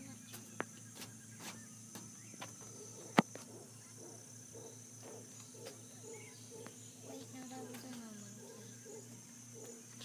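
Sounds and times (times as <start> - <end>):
insects droning: 0.0 - 10.0
faint animal calls: 2.3 - 10.0.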